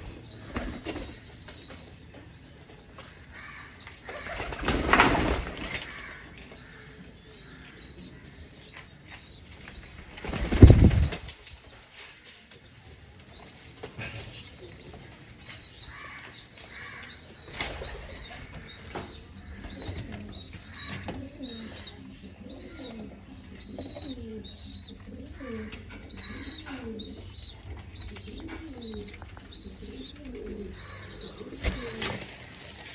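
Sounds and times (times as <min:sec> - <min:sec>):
pigeons cooing: 0:14.0 - 0:32.9.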